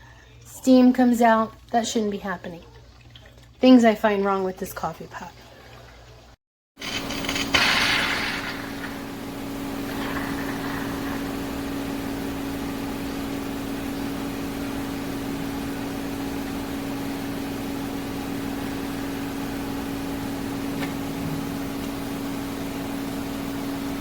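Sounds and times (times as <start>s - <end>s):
low machine hum: 6.8s - 24.0s.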